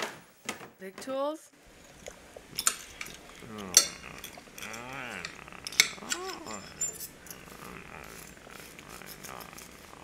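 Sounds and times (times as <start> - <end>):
metallic clinks: 2.6 - 8.4.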